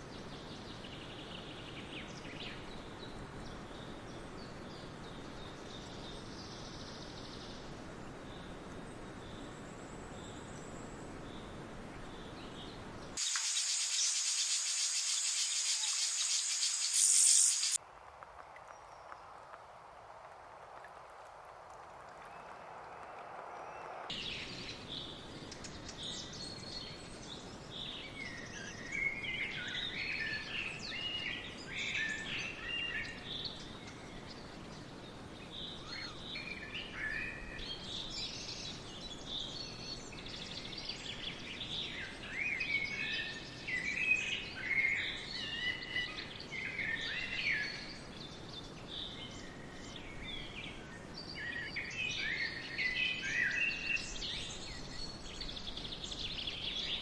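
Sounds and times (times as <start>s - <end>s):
faint steady hiss: 0.0s - 57.0s
songbirds singing: 9.2s - 17.8s, 21.0s - 57.0s.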